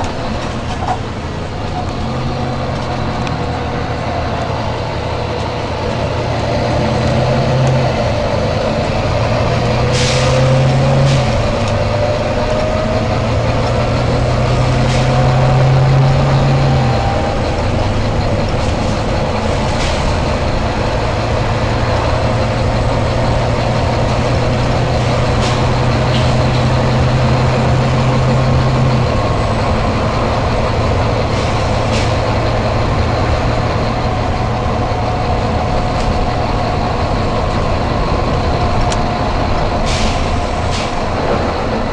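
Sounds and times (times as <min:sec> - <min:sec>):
diesel bus engine: 0:00.0 - 0:41.9
air brake hisses: 0:09.9 - 0:11.3, 0:39.8 - 0:41.1.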